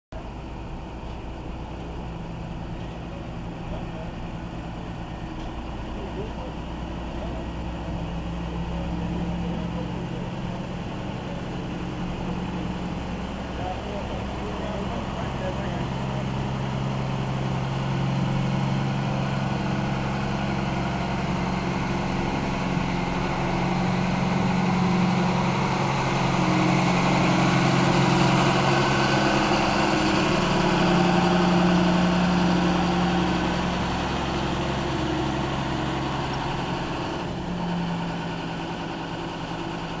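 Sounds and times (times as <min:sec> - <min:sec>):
tractor engine running: 0:00.2 - 0:40.0.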